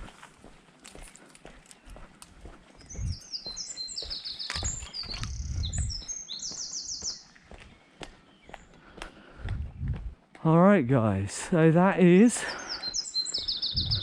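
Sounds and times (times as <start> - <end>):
dull low thumps: 2.8 - 3.2, 4.6 - 6.1, 9.3 - 10.4, 13.6 - 14.0
songbird trilling: 2.8 - 8.6, 12.4 - 14.0.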